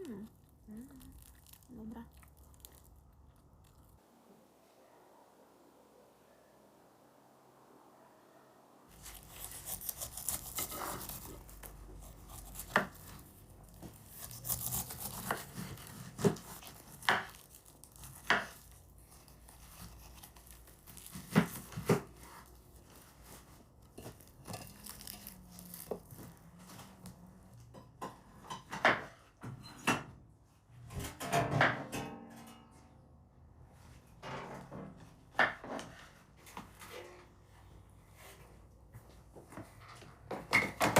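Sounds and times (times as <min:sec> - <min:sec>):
food scraping and tearing: 0:00.0 - 0:04.0, 0:08.9 - 0:27.2.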